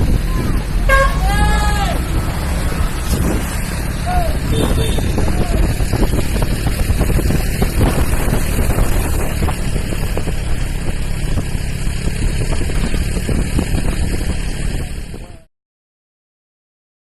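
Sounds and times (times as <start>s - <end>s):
wind buffeting microphone: 0.0s - 1.0s, 1.9s - 15.4s
motorcycle engine running: 0.0s - 15.5s.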